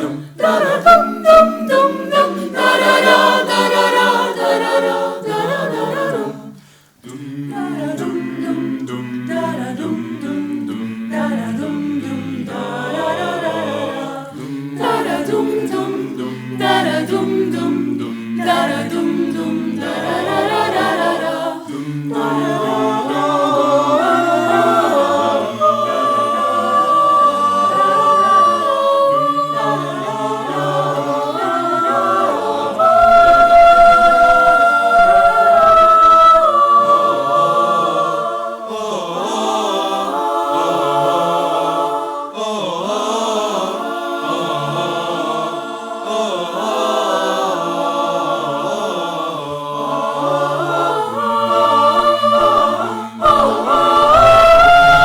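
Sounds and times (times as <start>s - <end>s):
choir singing a cappella: 0.0s - 55.0s.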